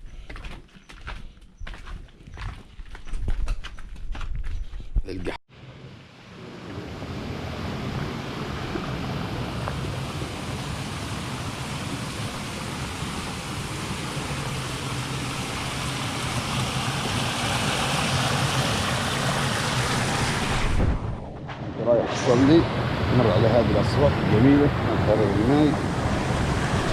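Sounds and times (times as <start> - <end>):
water rushing along stone channel: 6.5 - 20.9, 23.1 - 26.9.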